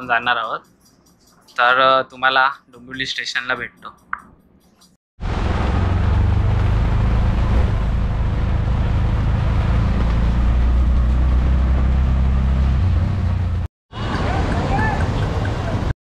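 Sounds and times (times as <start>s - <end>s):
vehicle rumbling in motion: 5.2s - 15.9s.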